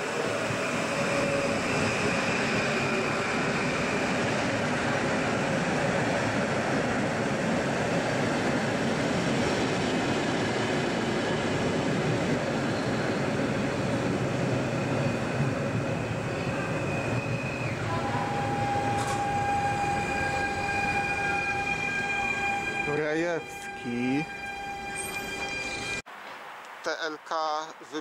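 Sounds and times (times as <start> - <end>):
train rolling rumble: 0.0 - 23.8
high whine: 14.6 - 28.0.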